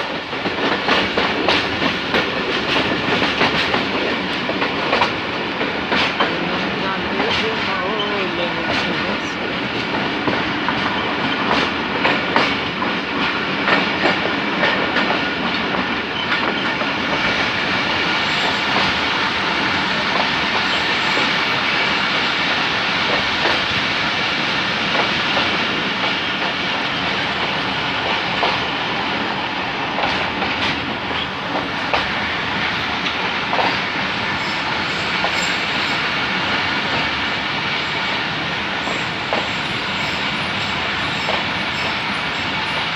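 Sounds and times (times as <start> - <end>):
train coaches rumbling past: 0.0 - 42.9
wheels clicking over rail joints: 0.1 - 9.0.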